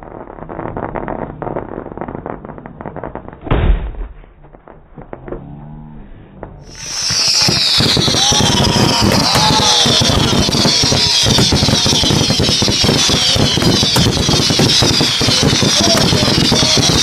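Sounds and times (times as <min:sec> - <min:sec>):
fireworks crackling and popping: 0:00.0 - 0:05.5, 0:06.4 - 0:17.0
loud firework bang: 0:02.6 - 0:05.4, 0:06.7 - 0:17.0.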